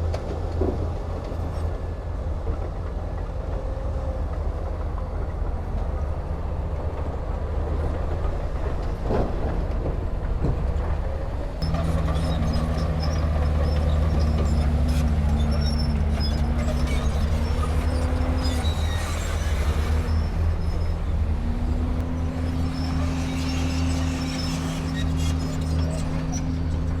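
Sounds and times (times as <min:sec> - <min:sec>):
bulldozer diesel engine running: 0:00.0 - 0:27.0
steel tracks squeaking: 0:07.8 - 0:27.0.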